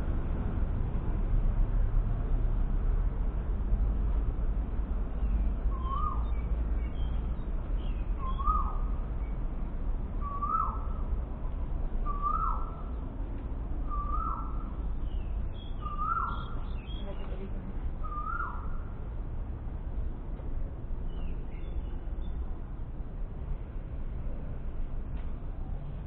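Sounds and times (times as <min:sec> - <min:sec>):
steady low rumble: 0:00.0 - 0:26.0
faint high bird chirps: 0:05.2 - 0:09.4, 0:10.2 - 0:13.0, 0:13.8 - 0:17.4, 0:18.0 - 0:18.8
bird calling: 0:08.0 - 0:08.9, 0:10.2 - 0:11.0, 0:12.0 - 0:13.0, 0:13.9 - 0:14.8, 0:15.6 - 0:17.4, 0:18.0 - 0:18.8.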